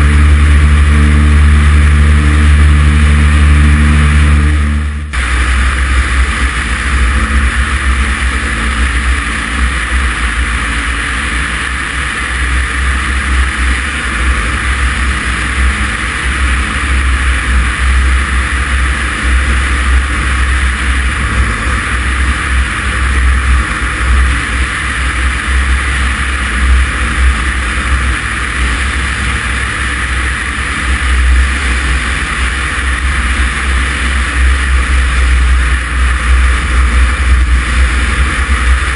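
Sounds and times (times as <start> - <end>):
propeller plane engine droning: 0.0 - 38.9
rush of air: 0.0 - 38.9.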